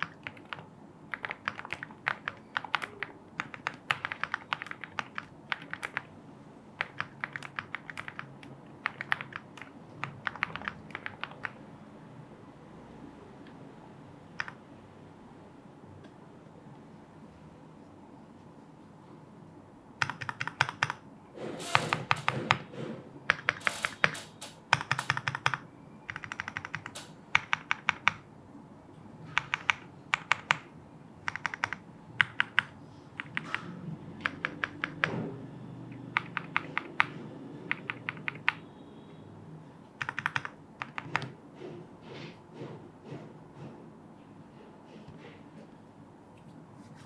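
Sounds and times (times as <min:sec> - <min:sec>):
mechanical keyboard typing: 0:00.0 - 0:06.1, 0:06.8 - 0:11.6, 0:14.3 - 0:14.6, 0:20.0 - 0:21.0, 0:21.6 - 0:22.7, 0:23.3 - 0:28.3, 0:29.3 - 0:35.2, 0:35.9 - 0:38.6, 0:40.0 - 0:41.4.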